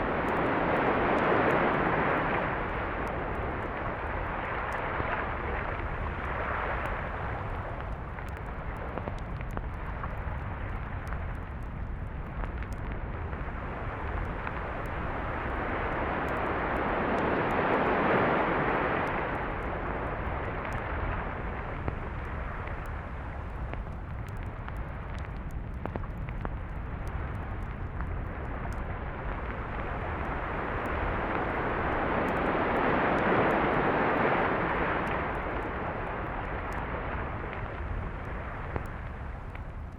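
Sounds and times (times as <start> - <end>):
steady low rumble: 0.0 - 39.9
waves washing on beach: 14.4 - 23.2, 29.8 - 39.4.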